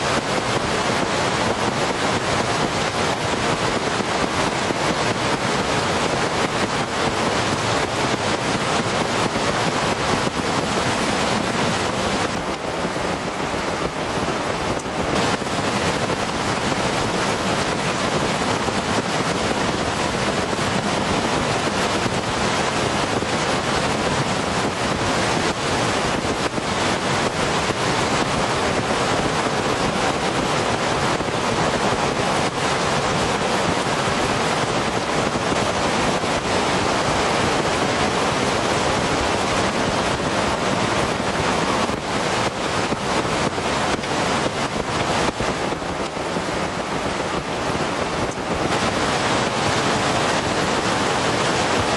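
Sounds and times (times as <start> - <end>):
heavy rain pouring: 0.0 - 51.9.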